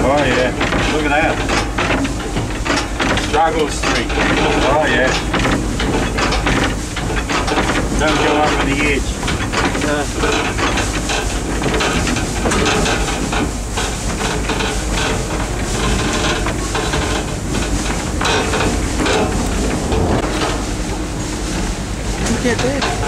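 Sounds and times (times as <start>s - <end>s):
train knocks and clanks: 0.0s - 23.0s
train rushing noise: 2.4s - 23.0s.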